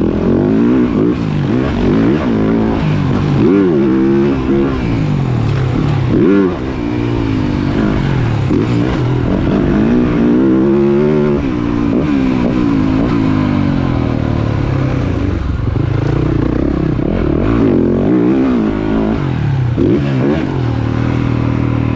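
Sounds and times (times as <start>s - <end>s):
motocross bike engine revving: 0.0s - 21.9s.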